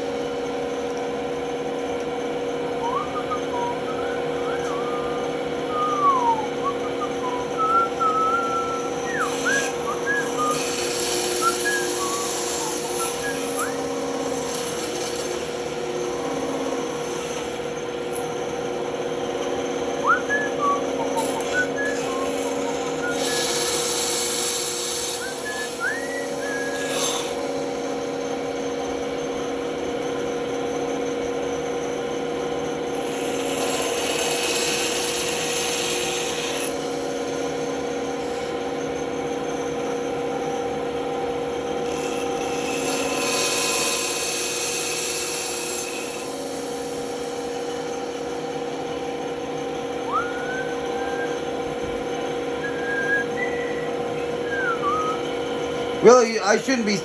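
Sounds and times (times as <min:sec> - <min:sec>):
band saw humming: 0:00.0 - 0:29.4, 0:39.8 - 0:57.0
short squeaks and clicks: 0:02.8 - 0:08.1
saw blade cutting workpiece: 0:06.0 - 0:18.7, 0:19.3 - 0:27.9, 0:33.0 - 0:38.8, 0:41.7 - 0:49.0.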